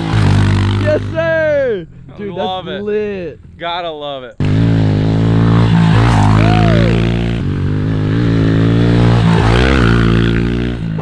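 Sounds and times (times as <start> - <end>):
dirt bike engine revving: 0.0 - 1.5, 4.4 - 11.0.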